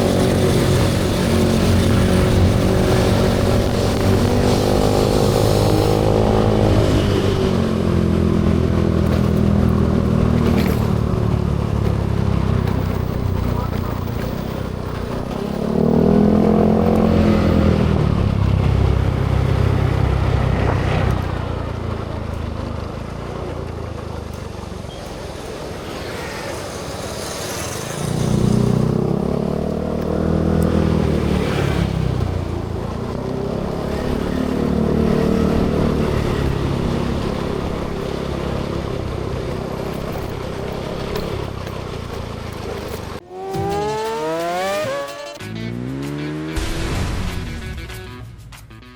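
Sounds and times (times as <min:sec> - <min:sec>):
wind noise: 0:00.0 - 0:14.2
motorcycle engine revving: 0:00.0 - 0:48.5.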